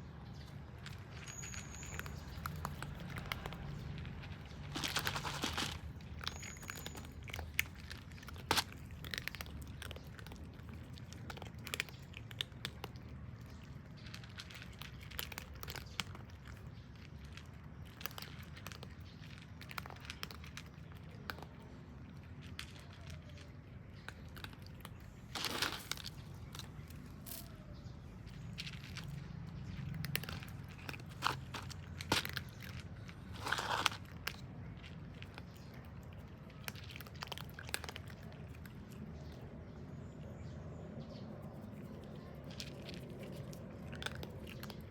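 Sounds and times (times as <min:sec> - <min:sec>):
cats crunching dry food: 0:00.0 - 0:40.3, 0:40.9 - 0:44.9
rustling: 0:00.4 - 0:09.3, 0:24.3 - 0:27.5, 0:30.2 - 0:35.4.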